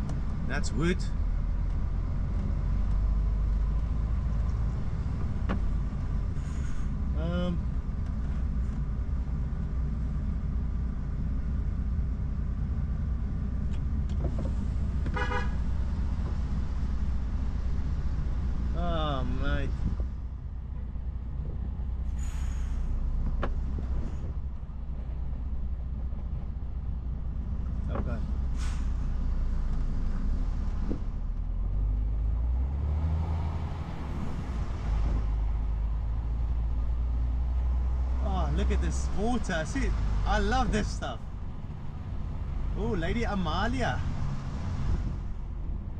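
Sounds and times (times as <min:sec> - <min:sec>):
lorry diesel engine running: 0:00.0 - 0:45.9
road noise: 0:00.0 - 0:45.9
vehicle horn toot: 0:15.1 - 0:15.6.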